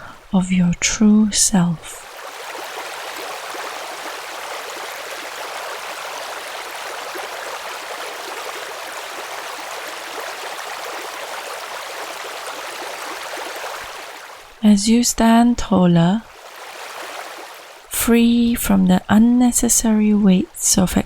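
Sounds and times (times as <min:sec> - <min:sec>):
stream rushing: 0:02.0 - 0:14.6, 0:16.3 - 0:17.9.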